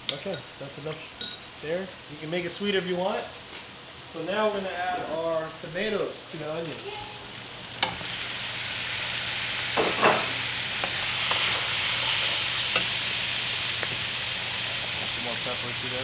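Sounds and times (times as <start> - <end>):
tomatoes sizzling in skillet: 0.0 - 16.0.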